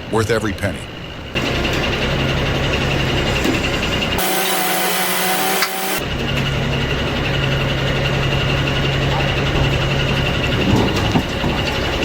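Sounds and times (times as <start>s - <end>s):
heavy machinery engine running: 1.4s - 12.0s
steady whine: 4.2s - 6.0s.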